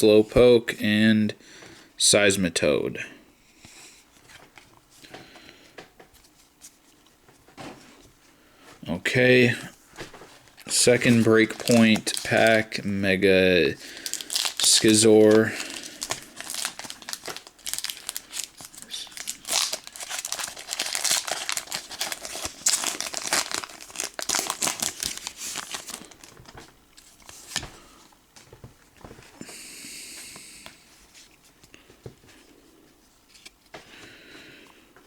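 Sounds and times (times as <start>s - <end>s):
foil wrapper crinkling and tearing: 10.5s - 12.8s, 13.7s - 26.5s.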